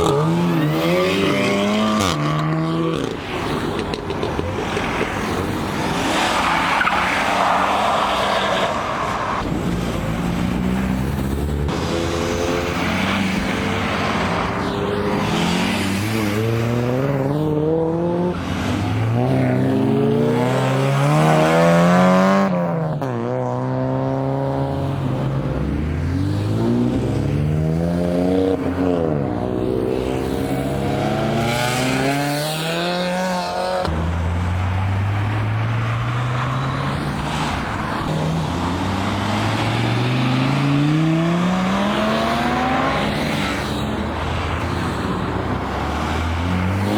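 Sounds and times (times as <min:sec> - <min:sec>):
cars accelerating hard: 0:00.0 - 0:46.9.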